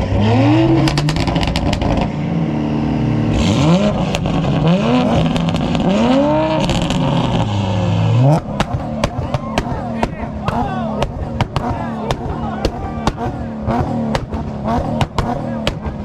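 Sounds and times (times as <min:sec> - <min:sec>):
car engine revving: 0:00.0 - 0:16.0
exhaust pops and cracks: 0:00.8 - 0:02.1, 0:08.4 - 0:16.0.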